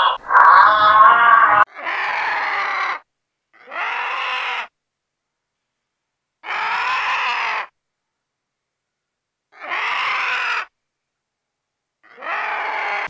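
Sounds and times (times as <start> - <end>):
vulture harsh calls: 0.0 - 3.0, 6.4 - 7.7, 9.6 - 10.7, 12.1 - 13.0.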